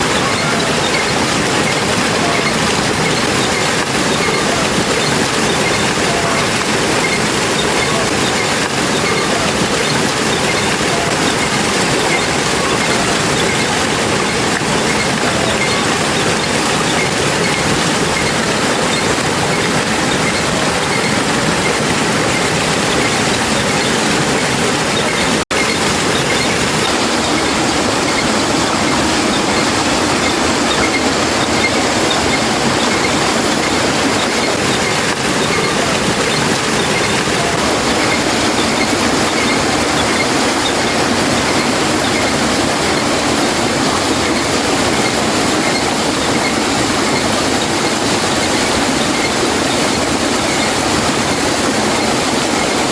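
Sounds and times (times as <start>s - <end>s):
loud rushing water: 0.0s - 52.9s.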